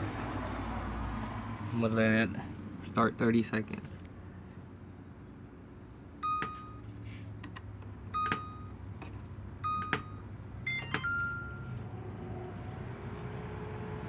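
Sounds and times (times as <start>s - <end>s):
long beep tone: 6.2s - 6.8s, 8.2s - 8.7s, 9.6s - 11.7s
microwave keypad beeps: 6.2s - 6.8s, 8.1s - 8.8s, 9.6s - 11.8s
microwave click: 9.7s - 11.6s.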